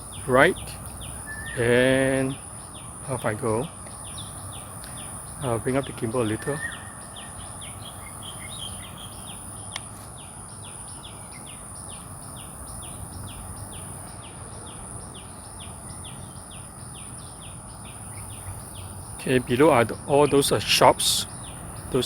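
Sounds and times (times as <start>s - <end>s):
low outdoor rumble: 0.0s - 9.7s
bird chirping: 0.0s - 22.0s.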